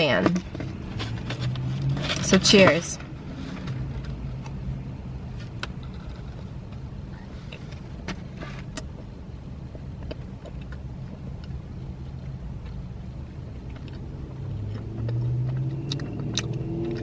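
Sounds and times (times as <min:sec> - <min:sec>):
steady low hum: 0:00.0 - 0:17.0
person chewing: 0:09.7 - 0:17.0.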